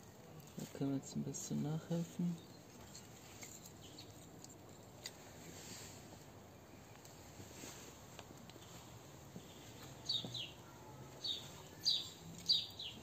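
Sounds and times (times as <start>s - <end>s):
small bird chirping: 2.2s - 4.3s, 8.6s - 13.0s.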